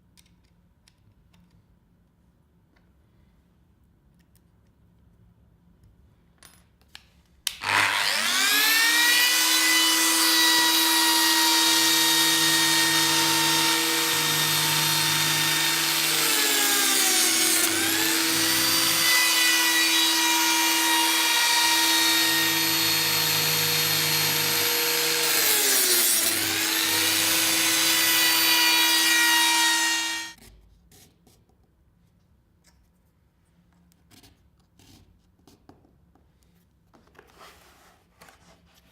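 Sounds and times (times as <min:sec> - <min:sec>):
router spindle whining: 0:07.6 - 0:30.4.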